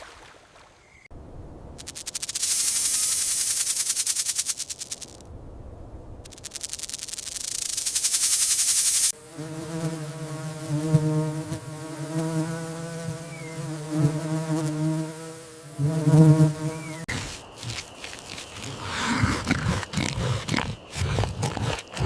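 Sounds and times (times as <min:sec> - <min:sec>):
flying insect buzzing: 0:01.8 - 0:05.2, 0:06.3 - 0:22.0
rapid high hissy rattle: 0:01.8 - 0:05.2, 0:06.3 - 0:16.9.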